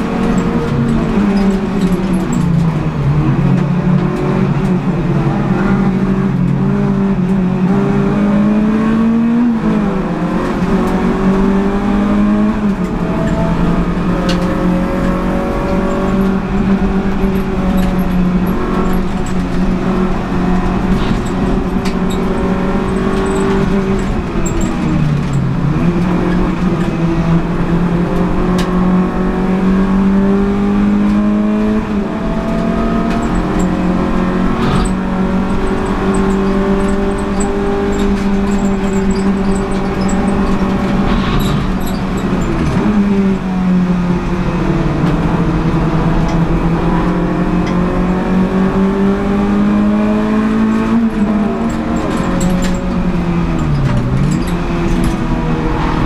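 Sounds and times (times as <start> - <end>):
car engine revving with gear changes: 0.0 - 56.0.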